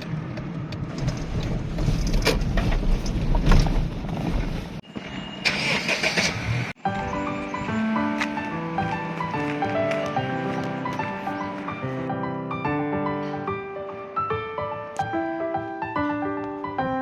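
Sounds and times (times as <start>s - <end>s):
car rumbling: 0.0s - 12.1s.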